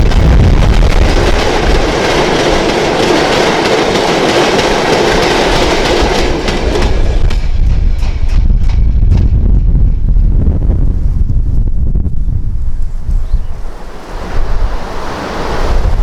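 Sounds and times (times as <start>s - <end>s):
train wheels on rails: 0.0s - 10.3s.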